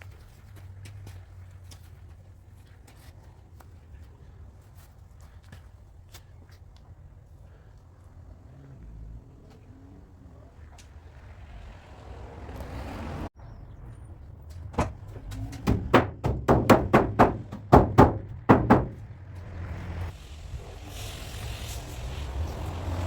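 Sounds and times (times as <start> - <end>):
hammer blows on sheet metal: 15.4 - 19.0.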